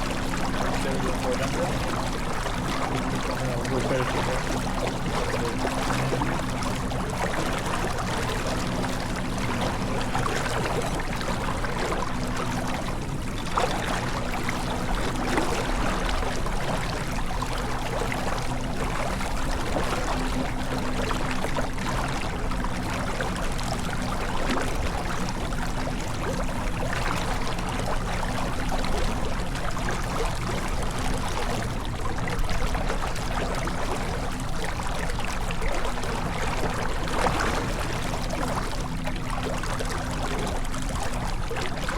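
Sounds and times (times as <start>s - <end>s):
steady low hum: 0.0s - 41.9s
water splashing along hull: 0.0s - 41.9s.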